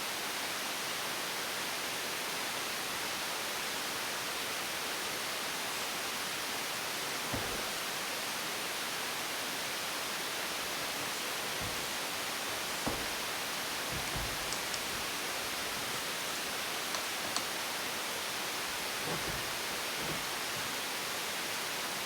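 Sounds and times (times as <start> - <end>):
faint knock: 7.3 - 7.8, 11.6 - 17.5, 18.7 - 20.7.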